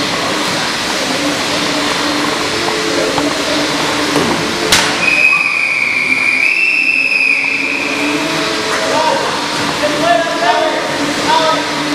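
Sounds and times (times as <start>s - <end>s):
murmur of players and spectators: 0.0s - 11.9s
sharp knock: 4.2s - 5.0s
referee whistle blast: 4.9s - 8.2s.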